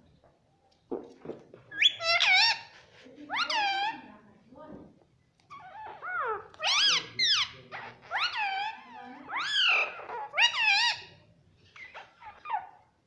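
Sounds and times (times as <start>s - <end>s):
parrot calling: 1.7s - 4.1s, 5.5s - 11.2s, 11.8s - 12.8s.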